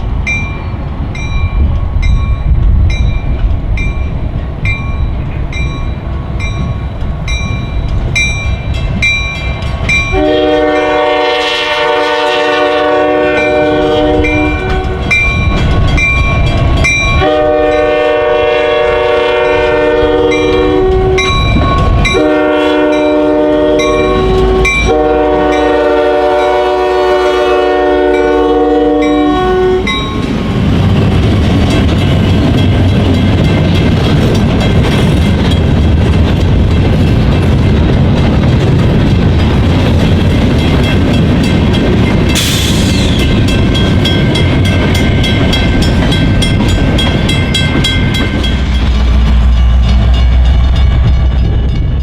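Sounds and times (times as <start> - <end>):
freight train rumbling: 0.0 - 52.0
locomotive air horn: 10.1 - 15.1, 17.1 - 30.0.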